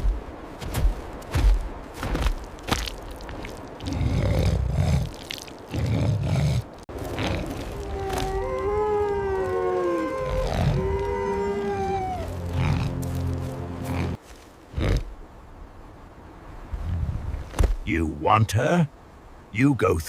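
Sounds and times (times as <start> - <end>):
deep animal growls: 5.7 - 13.2
drawn-out howls: 5.8 - 14.2.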